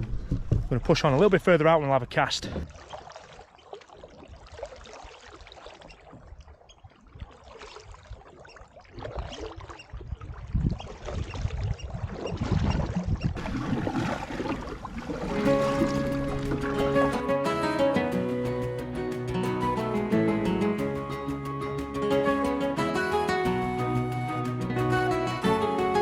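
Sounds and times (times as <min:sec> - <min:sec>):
paddle splashing in water: 0:02.2 - 0:19.3.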